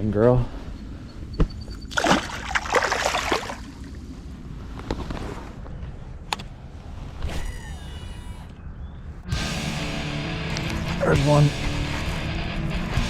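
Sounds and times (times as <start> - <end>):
wind: 0.0 - 12.8
river water washing: 1.9 - 4.0
water splashing: 1.9 - 4.0.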